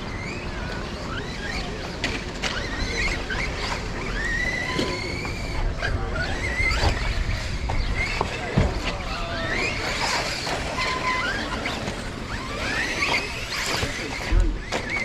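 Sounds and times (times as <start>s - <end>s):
electric toy car motors whining: 0.0s - 15.0s.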